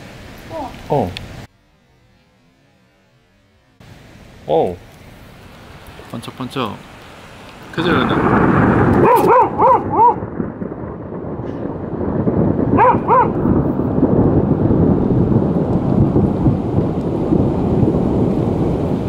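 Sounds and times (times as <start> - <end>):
heavy rain: 0.0 - 1.5, 3.8 - 19.0
thunder rumbling: 4.5 - 19.0
dog barking: 9.0 - 10.2, 12.8 - 13.4.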